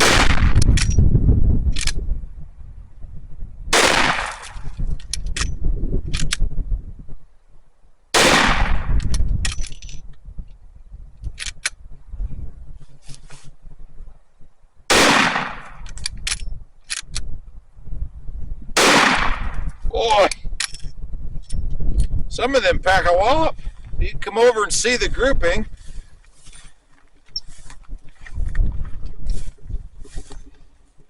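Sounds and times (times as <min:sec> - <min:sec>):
heavy gunshots: 0:00.0 - 0:00.6, 0:03.7 - 0:04.6, 0:08.2 - 0:09.0, 0:14.9 - 0:15.8, 0:18.8 - 0:19.6.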